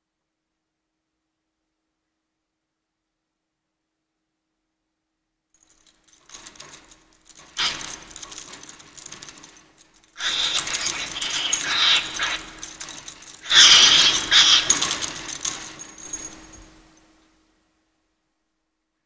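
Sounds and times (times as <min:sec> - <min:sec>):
cockatiel screeching and rattling: 0:07.4 - 0:09.6, 0:10.2 - 0:16.4.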